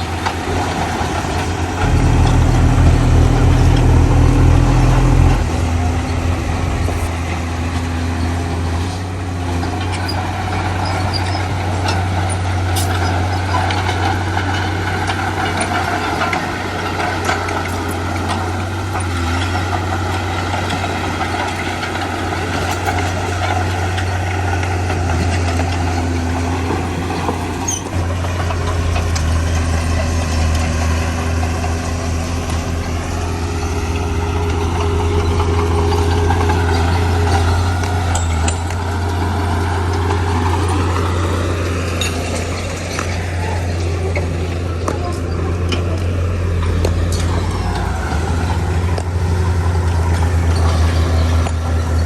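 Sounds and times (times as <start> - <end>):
heavy diesel machinery engine: 0.0 - 52.0.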